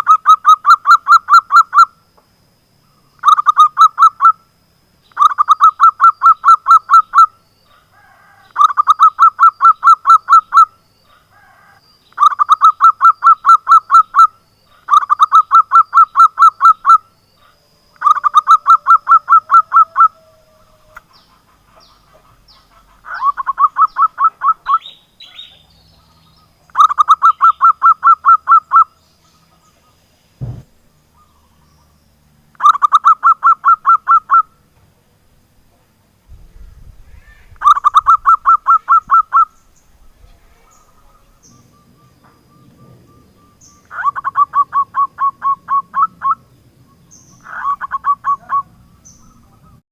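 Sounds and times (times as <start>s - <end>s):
dove calling staccato notes: 3.2s - 4.4s, 5.1s - 7.4s, 8.5s - 11.2s, 12.2s - 17.0s, 18.0s - 20.3s, 20.9s - 31.5s, 32.6s - 34.6s, 37.2s - 39.6s, 40.6s - 46.5s, 47.1s - 49.8s
short low thump: 30.4s - 30.8s.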